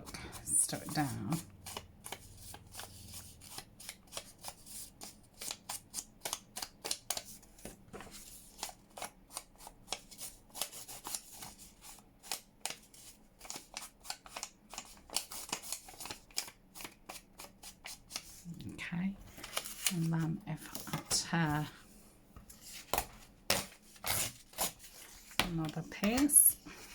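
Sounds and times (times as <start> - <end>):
paper rustling and tapping: 6.2 - 8.3, 22.3 - 23.8, 24.5 - 26.4.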